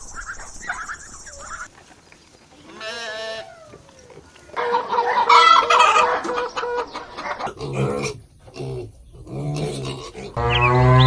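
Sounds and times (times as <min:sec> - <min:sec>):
rooster crowing: 0:04.6 - 0:07.1.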